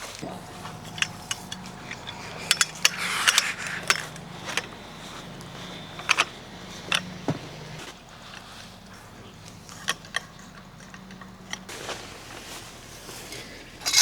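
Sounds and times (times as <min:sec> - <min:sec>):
steady low hum: 0:00.0 - 0:14.0
small hard objects clinking: 0:00.1 - 0:12.7
rustle: 0:11.7 - 0:14.0.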